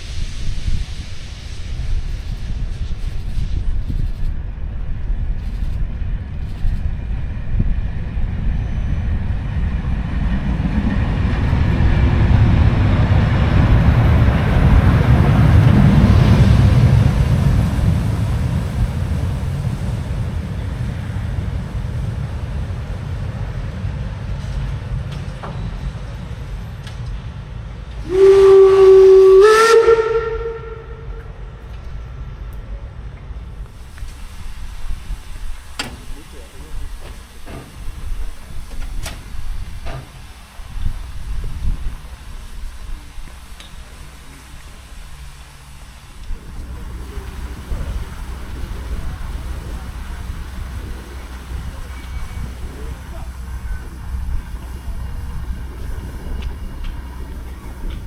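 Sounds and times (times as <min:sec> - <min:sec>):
steam locomotive rumble and hiss: 0:00.0 - 0:58.0
steam whistle blast: 0:28.0 - 0:31.6, 0:46.4 - 0:58.0.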